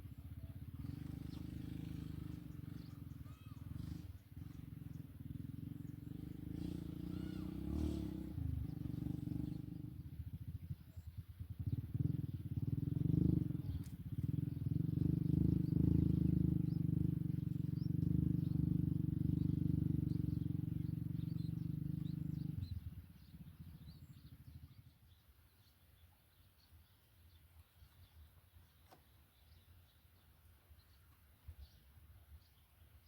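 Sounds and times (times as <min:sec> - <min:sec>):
vehicle engine droning: 0:00.0 - 0:24.9
faint bird chirps: 0:00.0 - 0:33.0.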